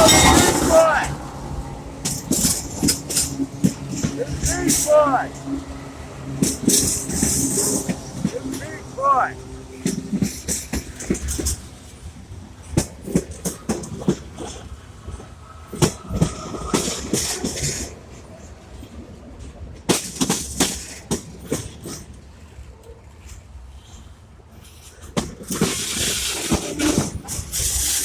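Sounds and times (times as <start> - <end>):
train rumbling: 0.0 - 28.0
wheels clicking over rail joints: 0.0 - 28.0.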